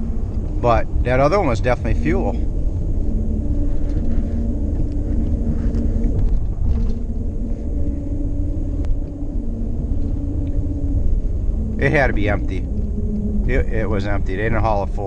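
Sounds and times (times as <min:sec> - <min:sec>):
vehicle road rumble inside cabin: 0:00.0 - 0:15.0.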